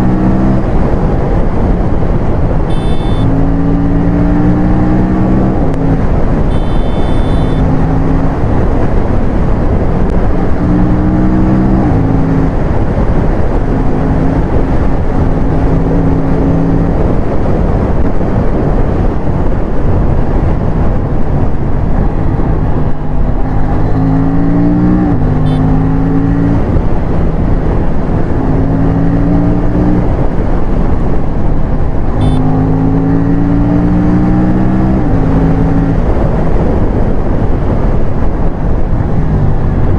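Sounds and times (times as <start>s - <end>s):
wind rush on microphone: 0.0s - 39.9s
motorcycle engine running: 2.6s - 3.8s, 5.7s - 9.0s, 25.0s - 28.6s, 30.2s - 33.2s.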